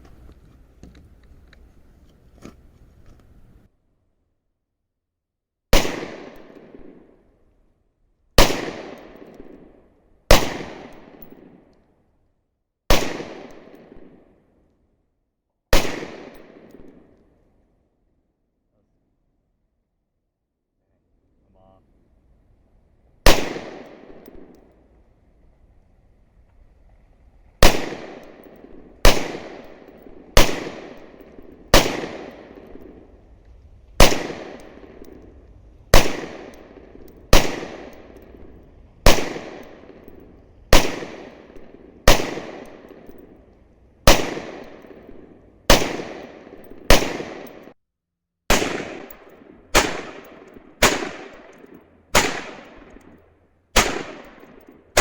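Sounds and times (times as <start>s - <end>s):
rifle shots echoing: 5.7s - 7.2s, 8.4s - 11.7s, 12.9s - 14.4s, 15.7s - 17.3s, 23.2s - 24.8s, 27.6s - 47.8s, 48.5s - 55.0s.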